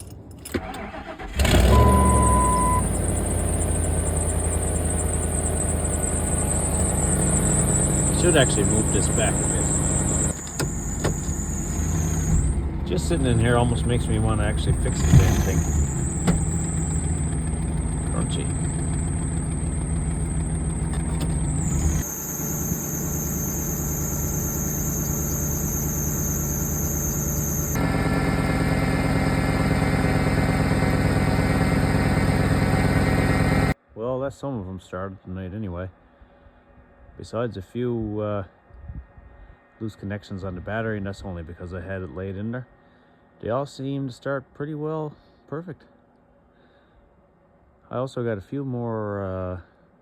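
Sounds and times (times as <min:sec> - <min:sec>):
high-pitched squeal: 0:00.7 - 0:33.8
truck engine idling: 0:00.7 - 0:33.8
electronic beep: 0:01.7 - 0:03.2.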